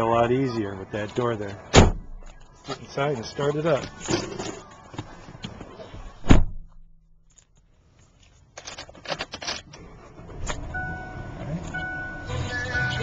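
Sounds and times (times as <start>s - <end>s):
car door shutting: 1.7s - 2.2s, 6.1s - 6.8s.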